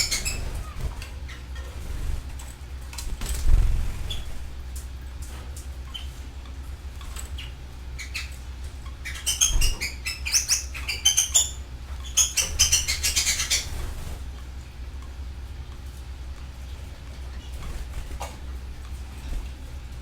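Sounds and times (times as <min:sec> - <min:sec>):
canaries chirping and trilling: 0:00.0 - 0:04.8, 0:06.9 - 0:14.2
steady low hum: 0:00.0 - 0:20.0.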